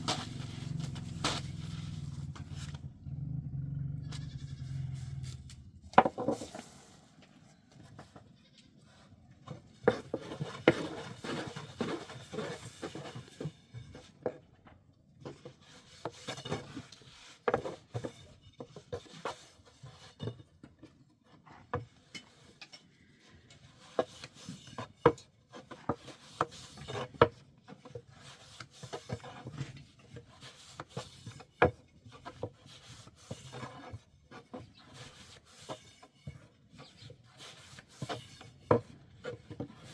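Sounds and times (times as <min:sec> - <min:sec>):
goats bleating: 0:04.0 - 0:04.9.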